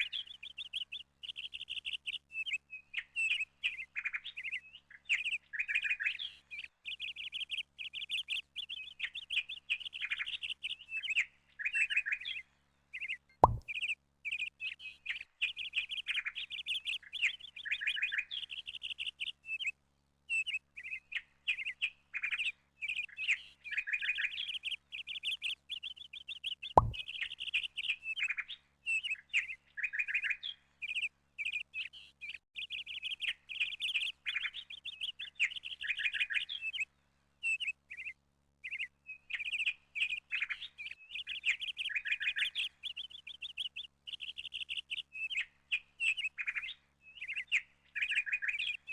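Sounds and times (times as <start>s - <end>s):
small birds chirping: 0.0s - 48.9s
sharp click: 13.4s - 13.7s, 26.8s - 27.0s.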